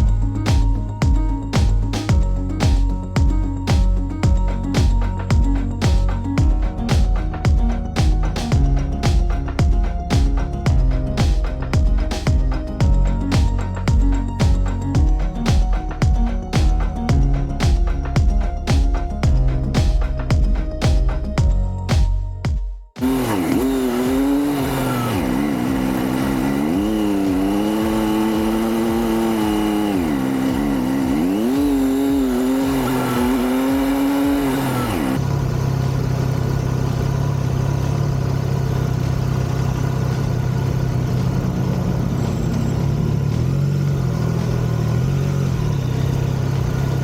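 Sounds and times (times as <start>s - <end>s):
motorcycle engine revving: 23.0s - 47.0s.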